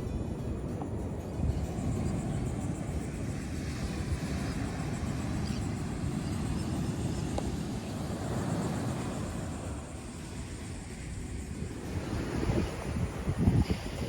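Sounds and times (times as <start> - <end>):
ocean surf: 0.0 - 14.0
wind buffeting microphone: 0.0 - 14.0.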